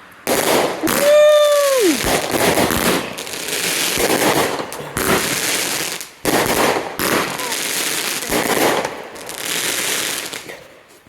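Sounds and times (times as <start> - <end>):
firework crackling and popping: 0.0 - 11.0
person shouting woo: 0.8 - 2.1.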